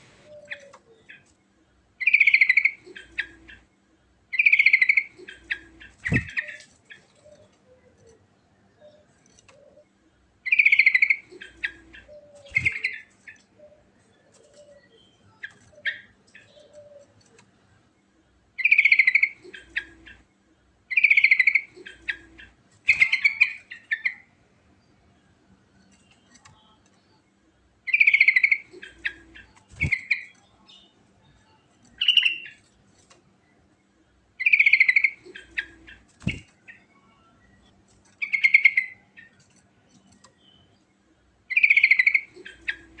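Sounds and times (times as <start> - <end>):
bulbul singing: 2.0 - 3.7, 4.3 - 17.4, 18.6 - 20.3, 20.9 - 24.3, 27.9 - 32.7, 34.4 - 43.0.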